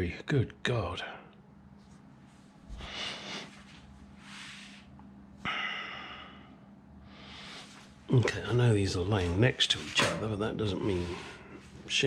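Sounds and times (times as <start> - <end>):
man breathing heavily: 2.7 - 3.8, 5.4 - 8.0.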